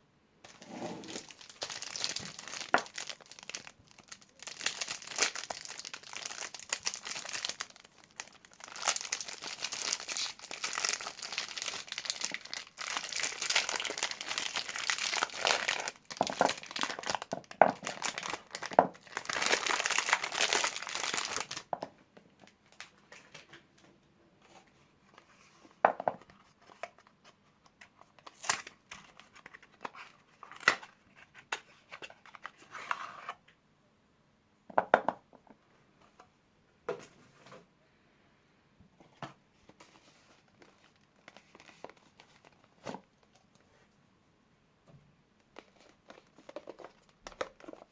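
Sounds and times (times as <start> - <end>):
wrappers crinkling and tearing: 0.5 - 21.7, 40.4 - 43.0.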